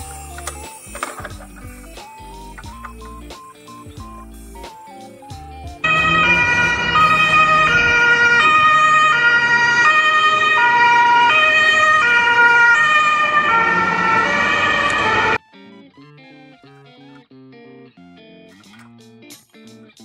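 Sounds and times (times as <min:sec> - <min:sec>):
ambulance two-tone siren: 0:05.8 - 0:15.4.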